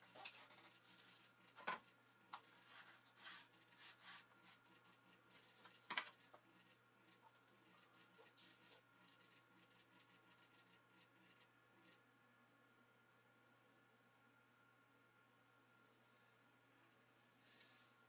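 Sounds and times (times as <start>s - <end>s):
faint rubbing: 2.5s - 11.4s.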